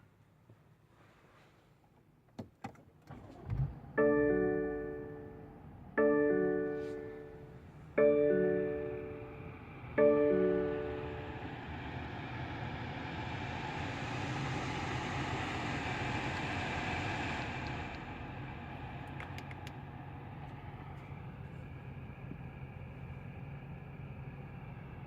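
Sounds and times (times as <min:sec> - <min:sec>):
car engine idling: 0:03.1 - 0:25.0.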